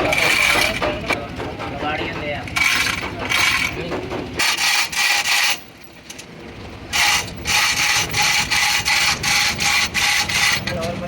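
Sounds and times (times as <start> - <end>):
hand tool scraping metal: 0.0 - 0.9, 4.4 - 5.7, 7.0 - 10.9.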